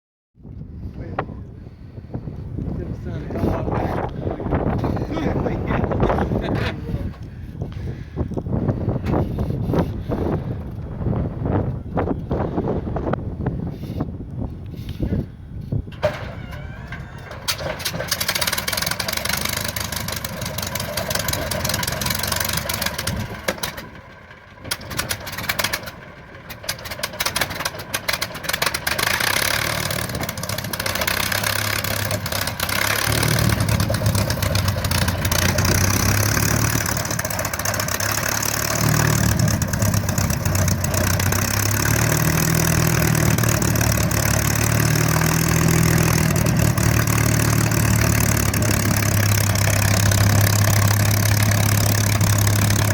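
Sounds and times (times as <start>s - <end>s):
aircraft engine starting up: 15.9s - 52.9s.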